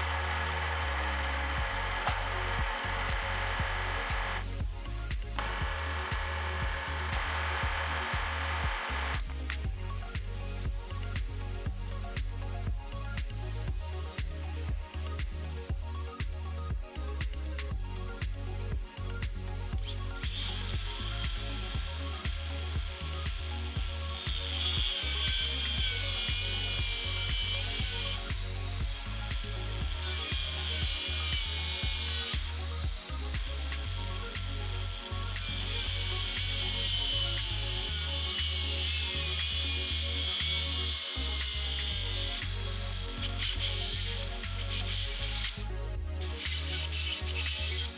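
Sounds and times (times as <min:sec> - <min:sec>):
machine tool cutting steel: 0:00.0 - 0:04.4, 0:05.4 - 0:09.2, 0:23.6 - 0:37.0
low motor hum: 0:00.0 - 0:09.8.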